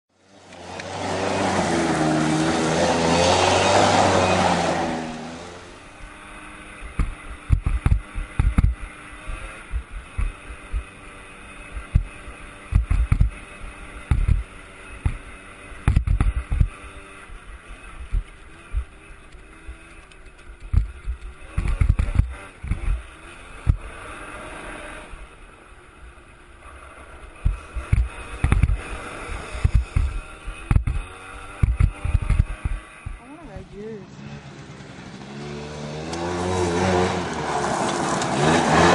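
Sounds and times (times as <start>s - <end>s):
distant atv engine: 0.1s - 38.9s.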